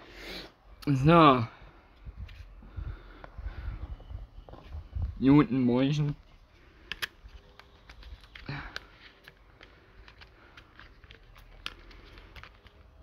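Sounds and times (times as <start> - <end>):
breathy sound: 8.3 - 12.6.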